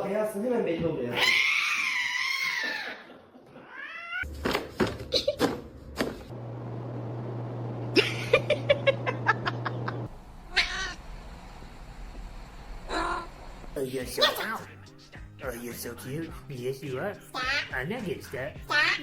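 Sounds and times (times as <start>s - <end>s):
cat meowing: 3.6s - 4.3s, 10.5s - 11.0s
steady low hum: 5.7s - 13.8s.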